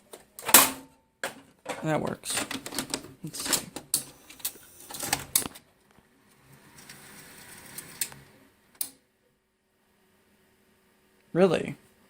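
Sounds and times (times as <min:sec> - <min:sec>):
cassette clicks and clunks: 0:00.4 - 0:05.6
tape deck loading whir: 0:02.4 - 0:05.6, 0:06.4 - 0:09.0.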